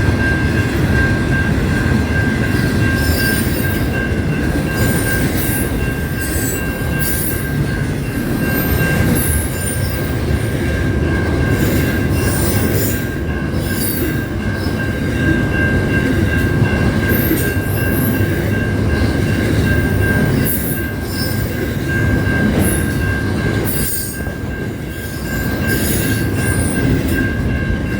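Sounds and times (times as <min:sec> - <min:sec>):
train rumbling on rails: 0:00.0 - 0:27.9.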